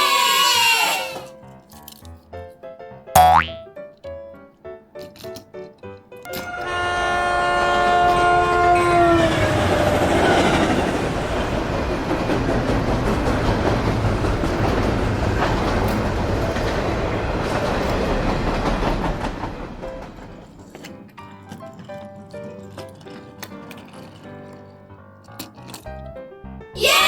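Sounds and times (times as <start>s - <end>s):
train horn chord: 6.3s - 9.4s
train cars rumbling and clacking: 9.0s - 20.8s.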